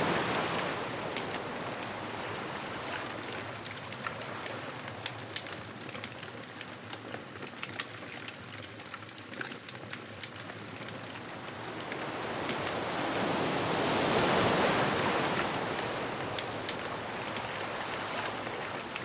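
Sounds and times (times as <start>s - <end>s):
surf: 0.0s - 4.9s, 11.4s - 19.0s
bonfire crackling and popping: 0.3s - 19.0s.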